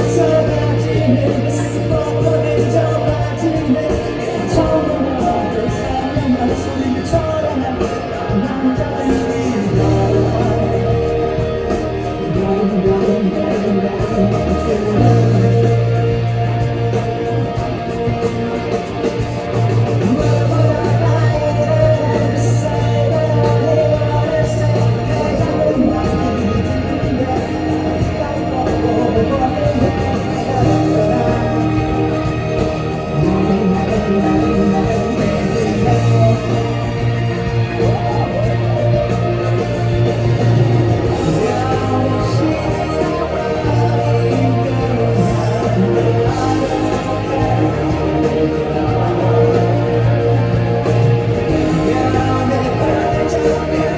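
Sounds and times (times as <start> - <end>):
bass line: 0.0 - 53.9
electric guitars: 0.0 - 53.9
live rock band playing: 0.0 - 53.9
man singing: 0.0 - 53.9.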